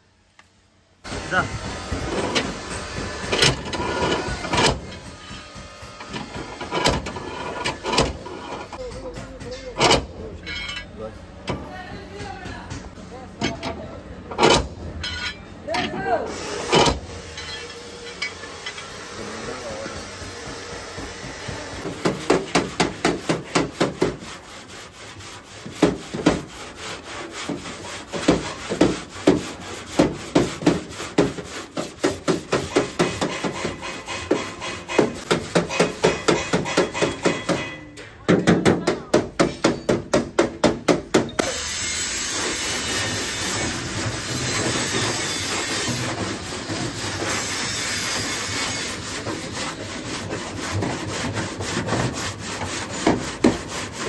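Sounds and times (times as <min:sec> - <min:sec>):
steady rasping noise: 0:19.0 - 0:37.6, 0:42.4 - 0:54.0
hand tool striking car body metal: 0:20.4 - 0:24.5, 0:27.4 - 0:41.6.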